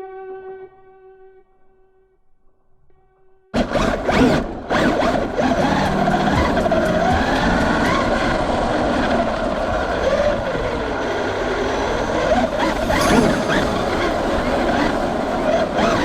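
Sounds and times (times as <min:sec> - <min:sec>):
electric motor whine: 0:03.6 - 0:16.0
steady rushing noise: 0:04.4 - 0:16.0.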